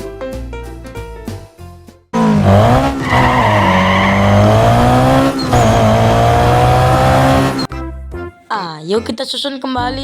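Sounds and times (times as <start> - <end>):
recorded race car engine: 2.2 - 7.7.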